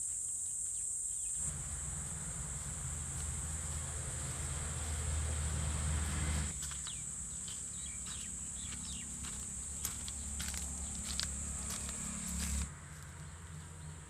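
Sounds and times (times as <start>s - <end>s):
high-pitched insect drone: 0.0s - 12.7s
low rumble: 1.4s - 6.5s.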